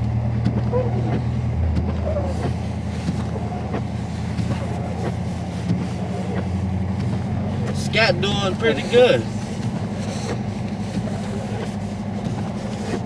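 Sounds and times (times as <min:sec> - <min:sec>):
car engine running from inside cabin: 0:00.0 - 0:13.0
road noise: 0:00.0 - 0:13.0.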